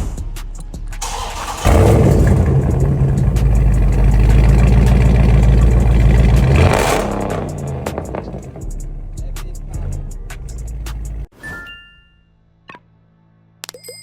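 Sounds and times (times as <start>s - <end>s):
car engine with loud exhaust: 1.0s - 11.3s.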